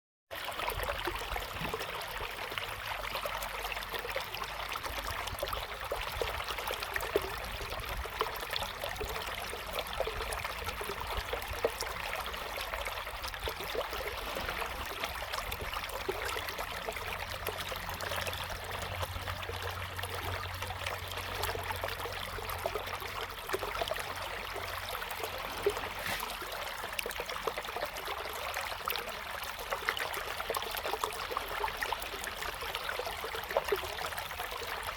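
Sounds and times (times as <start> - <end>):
river water flowing over stones: 0.4 - 34.9.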